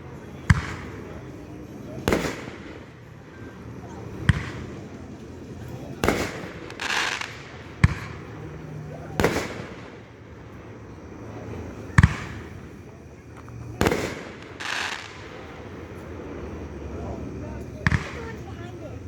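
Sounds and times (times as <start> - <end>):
fireworks bangs: 0.0 - 19.0
fireworks hissing burst: 6.0 - 8.2, 13.8 - 16.2.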